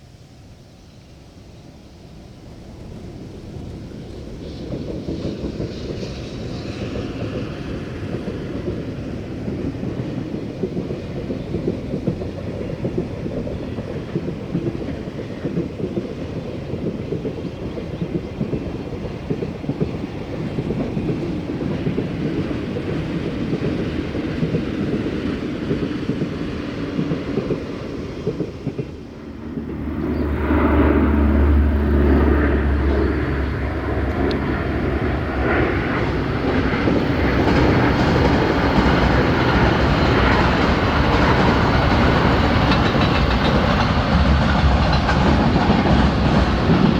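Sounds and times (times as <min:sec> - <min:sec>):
freight train rumbling past: 0:01.6 - 0:46.9
wheels clattering over track: 0:27.0 - 0:46.9
deep steady hum: 0:29.3 - 0:35.4.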